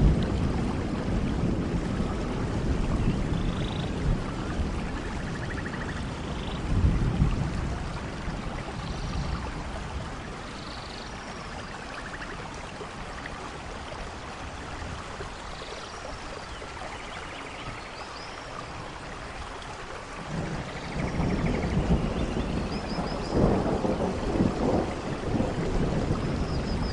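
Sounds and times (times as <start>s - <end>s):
low thunder rumble: 0.0s - 11.8s, 20.2s - 26.9s
steady rain: 0.0s - 26.9s.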